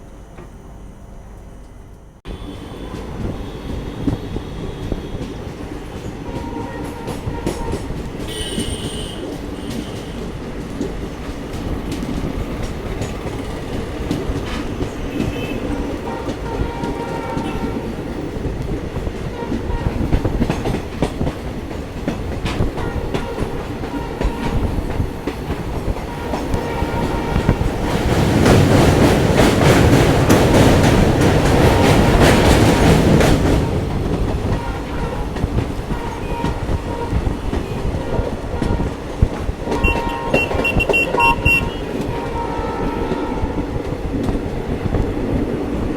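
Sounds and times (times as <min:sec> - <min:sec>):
train rumble with wheel clickety-clack: 0:00.0 - 0:45.9
brief high tone: 0:39.8 - 0:41.9.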